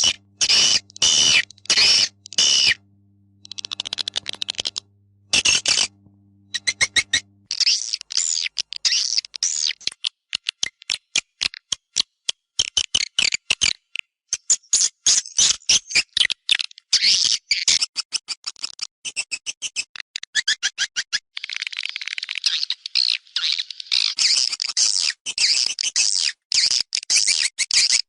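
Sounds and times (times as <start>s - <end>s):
high twittering chirps: 0.0s - 2.8s, 3.4s - 7.3s
bird dry clicks: 3.4s - 5.9s.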